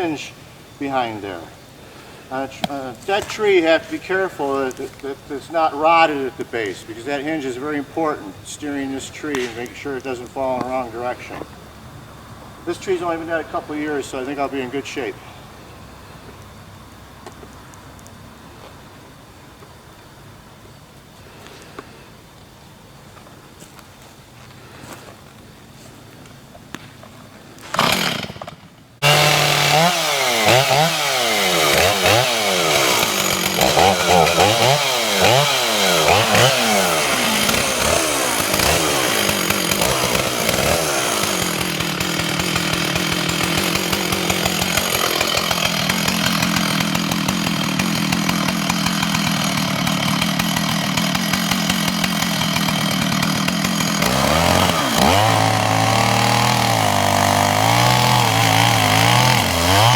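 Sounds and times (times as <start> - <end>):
chainsaw revving and cutting: 0.0 - 11.6, 12.5 - 15.2, 27.6 - 59.9.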